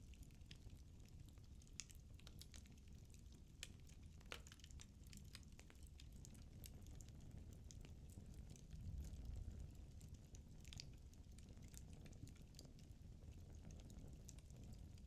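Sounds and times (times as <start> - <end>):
low rumble of flames: 4.6 - 15.0.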